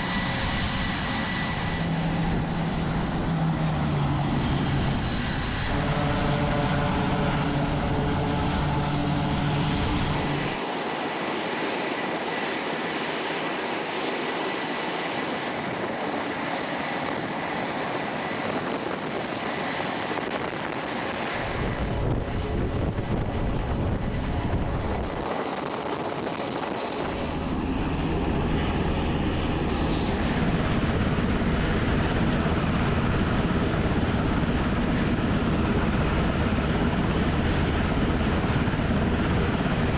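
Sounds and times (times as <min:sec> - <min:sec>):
aircraft engines with high whine: 0:00.0 - 0:39.9.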